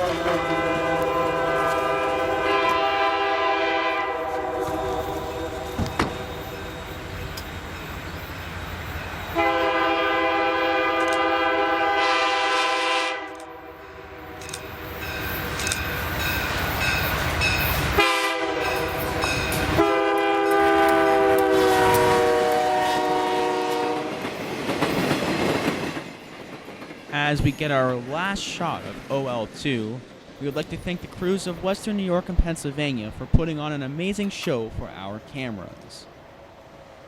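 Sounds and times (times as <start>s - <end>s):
locomotive air horn blasts: 0.0s - 5.8s, 9.4s - 13.7s, 17.9s - 24.2s.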